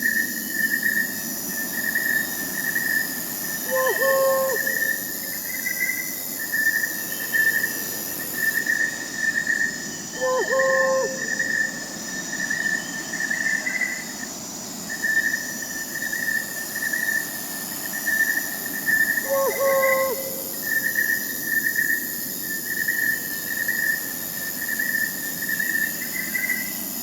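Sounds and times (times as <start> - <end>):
crickets chirping: 0.0 - 27.0
high insect drone: 0.0 - 27.0
owl hooting: 3.6 - 5.0, 10.2 - 11.6, 19.2 - 20.7.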